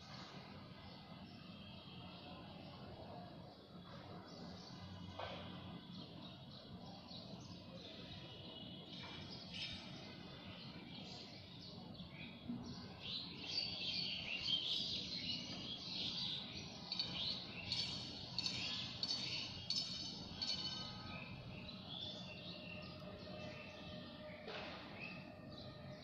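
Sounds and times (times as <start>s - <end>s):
birds chirping and chattering: 4.3s - 26.0s.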